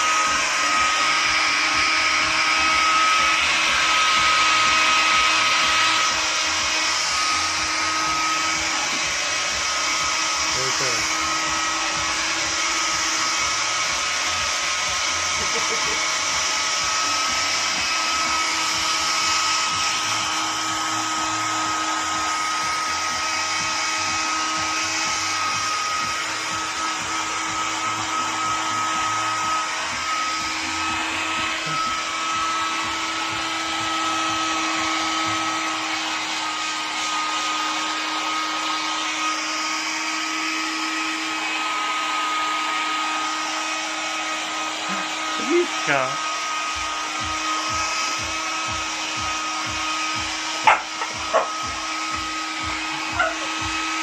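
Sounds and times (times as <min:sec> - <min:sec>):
hairdryer running: 0:00.0 - 0:54.0.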